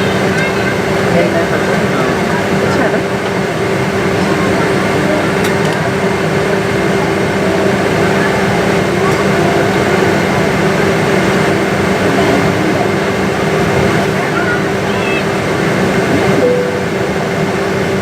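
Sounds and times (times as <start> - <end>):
machinery drone and hum: 0.0 - 18.0
murmur of voices: 0.0 - 18.0.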